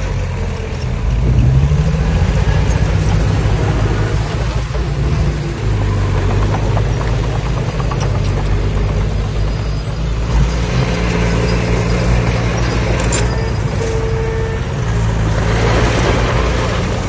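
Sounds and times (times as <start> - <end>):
diesel engine droning: 0.0 - 17.0
light metal clanks and knocks: 4.3 - 10.2.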